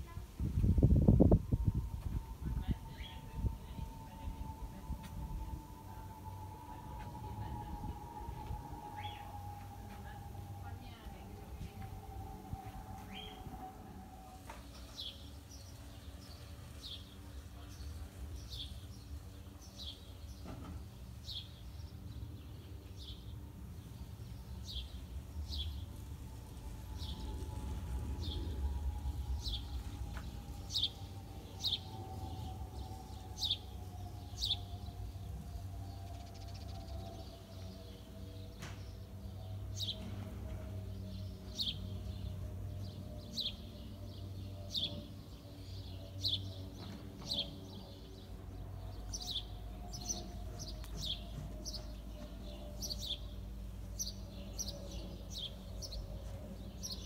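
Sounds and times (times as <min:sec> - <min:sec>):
distant airliner rumble: 0:00.0 - 0:57.0
bird chirping: 0:00.9 - 0:57.0.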